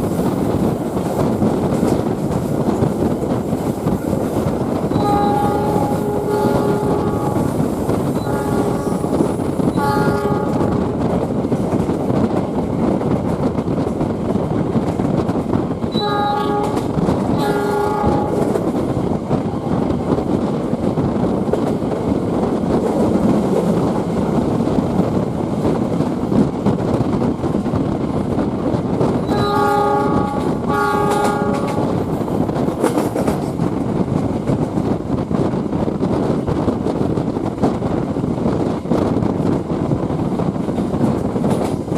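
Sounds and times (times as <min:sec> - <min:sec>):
train rumbling on rails: 0:00.0 - 0:41.9
train horn blasts: 0:04.9 - 0:11.0, 0:15.9 - 0:18.7, 0:29.2 - 0:32.1.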